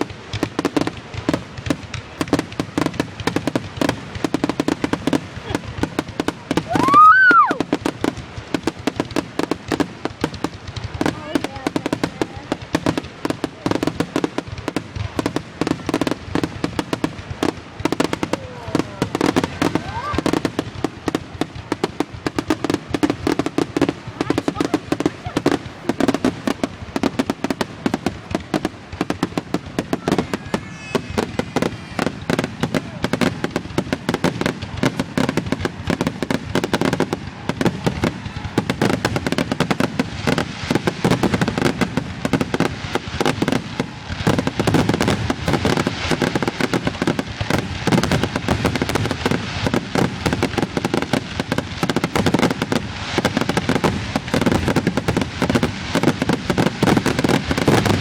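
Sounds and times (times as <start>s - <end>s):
fireworks banging and crackling: 0.0s - 58.0s.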